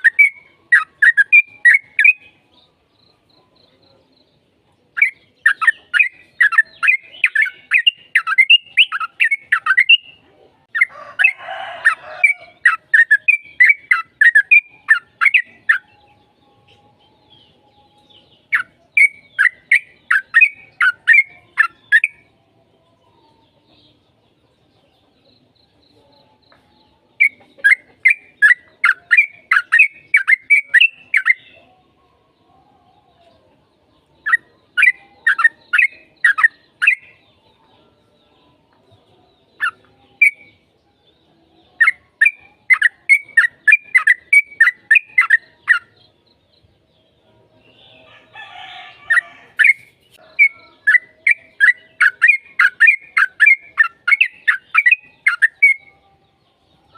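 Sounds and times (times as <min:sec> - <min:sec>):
bird singing rapid chattering notes: 0:00.0 - 0:22.3, 0:27.2 - 0:31.6, 0:34.2 - 0:37.2, 0:39.3 - 0:40.7, 0:41.7 - 0:47.1, 0:48.6 - 0:56.0.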